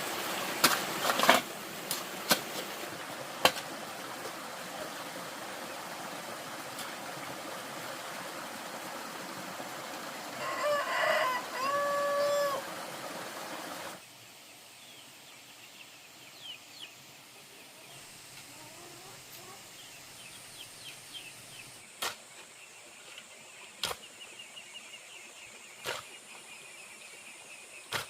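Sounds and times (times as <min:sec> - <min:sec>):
steady hiss: 0:00.0 - 0:28.0
rooster crowing: 0:10.4 - 0:12.7.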